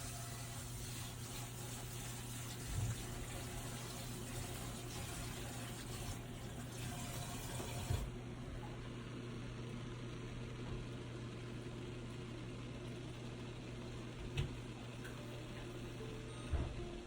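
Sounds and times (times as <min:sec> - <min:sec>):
tap water running into container: 0:00.0 - 0:08.1.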